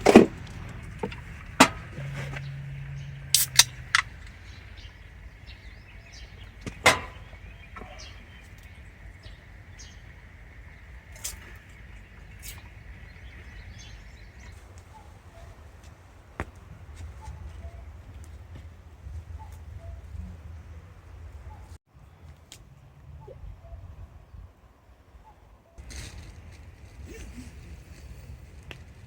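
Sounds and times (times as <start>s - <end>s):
wind rumble on microphone: 0.0s - 21.8s, 22.6s - 29.0s
sharp clicks and pops: 3.3s - 4.4s.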